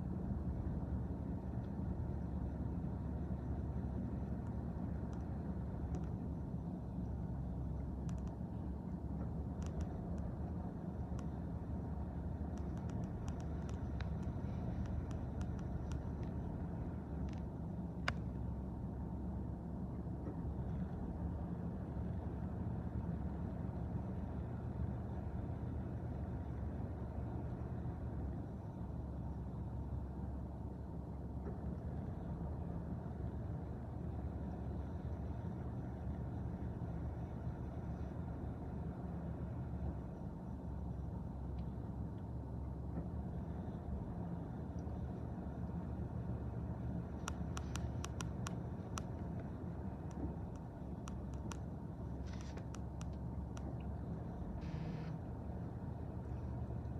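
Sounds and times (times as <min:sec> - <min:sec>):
sharp clicks and squeaks: 0:09.5 - 0:10.3, 0:12.5 - 0:16.5, 0:47.2 - 0:49.5, 0:50.1 - 0:53.8.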